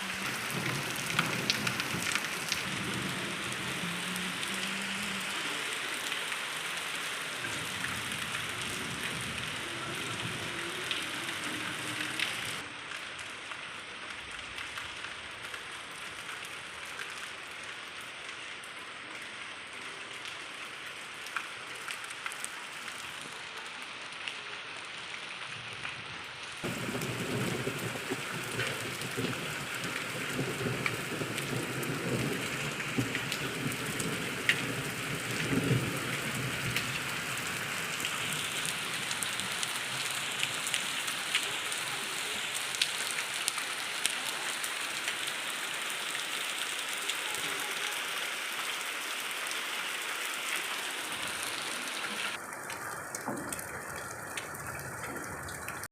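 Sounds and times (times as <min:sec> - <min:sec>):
rain falling: 0:00.0 - 0:55.9
sharp raindrop hits: 0:00.1 - 0:04.4, 0:26.6 - 0:41.5.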